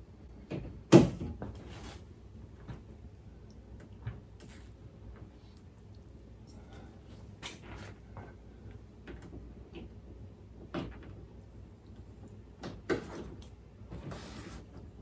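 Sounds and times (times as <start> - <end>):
short scrape or rustle: 14.0 - 14.7.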